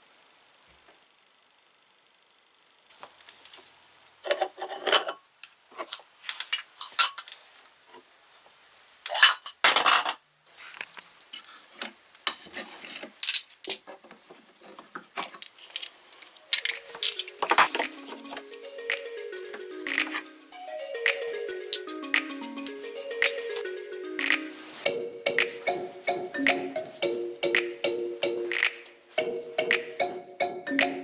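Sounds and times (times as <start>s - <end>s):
small hard objects clinking: 15.3s - 18.4s
music: 16.4s - 31.0s.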